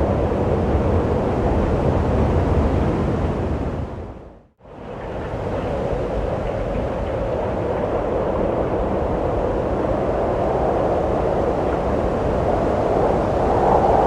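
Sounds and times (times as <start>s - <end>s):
rushing wind: 0.0s - 14.0s.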